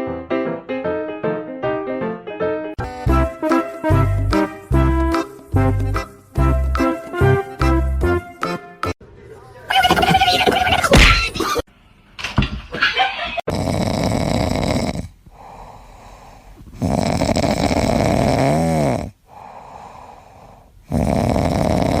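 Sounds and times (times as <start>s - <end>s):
pet snoring: 13.5s - 15.7s, 16.7s - 19.8s, 20.4s - 22.0s
quiet breaths: 14.1s - 22.0s.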